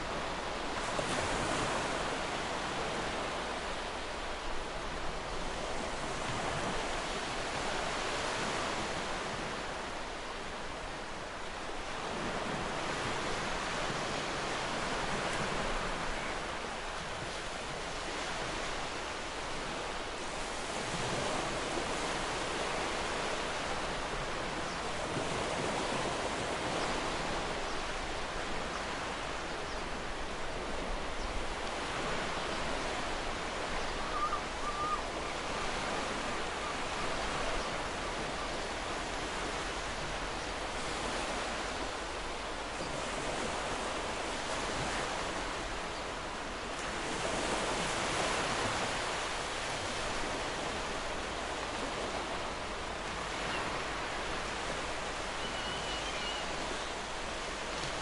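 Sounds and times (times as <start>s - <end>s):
ocean surf washing onto beach: 0.0s - 58.0s.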